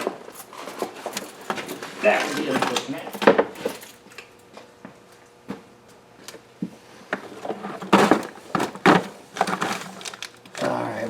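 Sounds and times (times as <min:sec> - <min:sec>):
rustling and scraping of parts: 0:00.0 - 0:04.2, 0:07.0 - 0:11.0.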